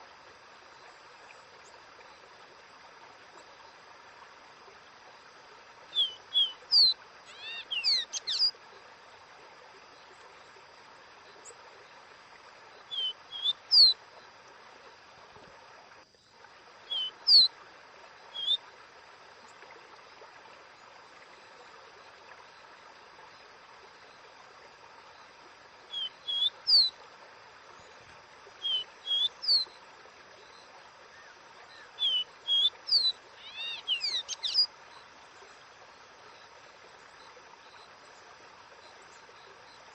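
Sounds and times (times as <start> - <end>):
stream rushing hiss: 0.0 - 39.9
bird whistling song: 5.9 - 8.5, 12.9 - 14.0, 16.9 - 17.5, 18.3 - 18.6, 25.9 - 27.0, 28.6 - 29.7, 31.8 - 34.7.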